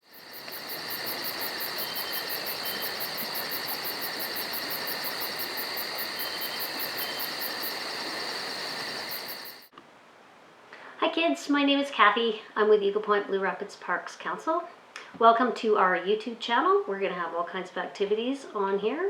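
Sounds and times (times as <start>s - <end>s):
insects chirping: 0.0s - 9.7s
constant hiss: 0.0s - 19.0s.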